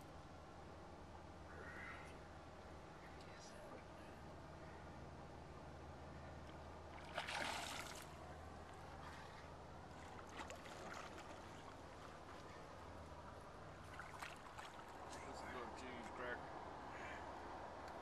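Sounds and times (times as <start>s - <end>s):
boat motor humming: 4.1s - 18.0s.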